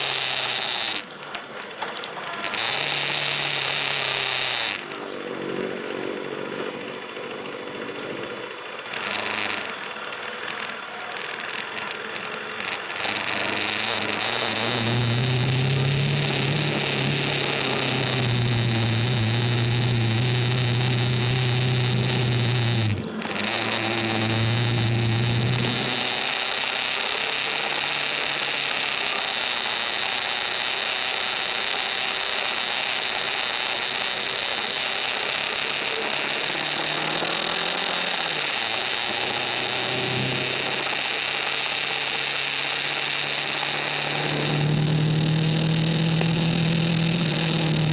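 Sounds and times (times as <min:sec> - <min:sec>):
motorcycle engine running: 0:08.9 - 0:28.1, 0:35.9 - 0:47.9.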